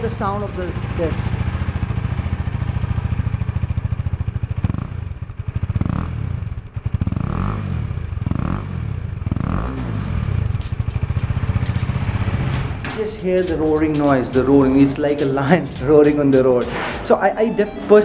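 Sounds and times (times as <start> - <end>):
motorcycle engine idling and revving: 0.0 - 17.4.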